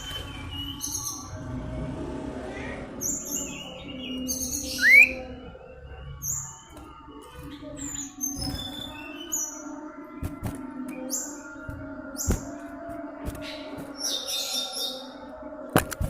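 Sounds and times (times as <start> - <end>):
bird chirping: 0.0 - 1.4, 2.6 - 15.4
low hum: 0.0 - 8.0.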